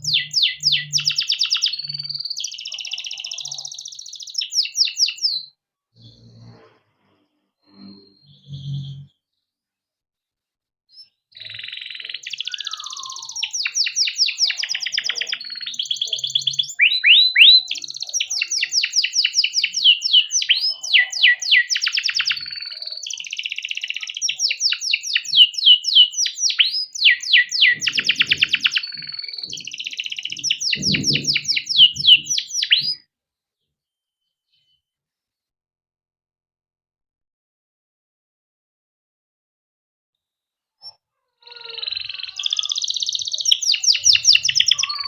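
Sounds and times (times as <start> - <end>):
canary singing trills: 0.0 - 6.6, 7.6 - 9.2, 10.9 - 33.1, 40.8 - 45.0.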